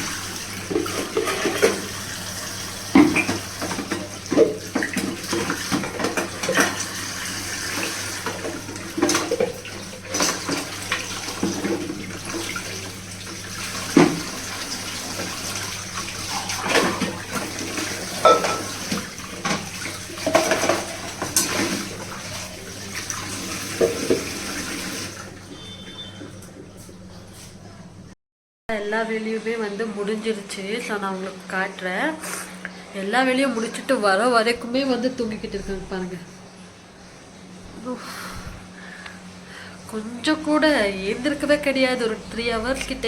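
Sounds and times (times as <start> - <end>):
water running from tap into sink: 0.0 - 26.8
pots and plates clinking: 0.6 - 2.0, 2.9 - 6.8, 8.2 - 12.2, 16.2 - 22.0.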